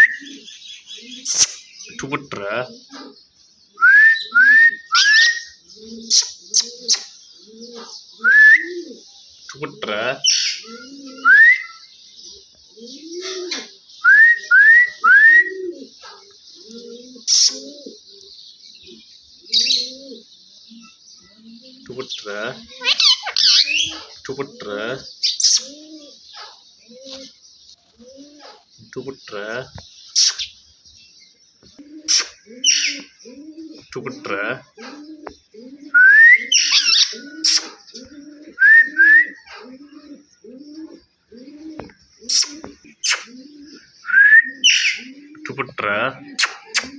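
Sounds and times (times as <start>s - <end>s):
low cooing call: 0.0s - 1.6s, 3.8s - 9.0s, 10.6s - 11.8s, 12.8s - 15.9s, 16.6s - 18.1s, 19.5s - 21.9s, 24.5s - 26.2s, 28.0s - 28.5s, 31.8s - 45.6s
parrot harsh screeches: 17.3s - 17.6s, 22.8s - 23.9s, 30.2s - 30.5s, 32.1s - 32.9s, 36.5s - 37.8s, 42.3s - 43.3s
parrot rising whistles: 36.0s - 37.8s, 42.3s - 43.3s.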